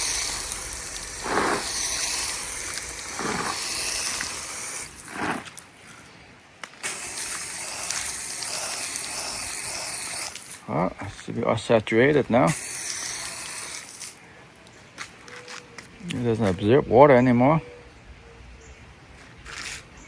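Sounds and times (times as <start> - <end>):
water spraying from a hose: 0.0 - 5.8, 6.7 - 14.2.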